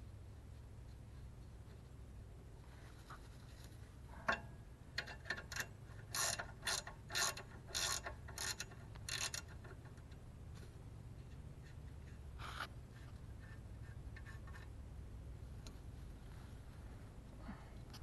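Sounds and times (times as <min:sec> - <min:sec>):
ratchet wrench clicking: 0:05.0 - 0:09.8.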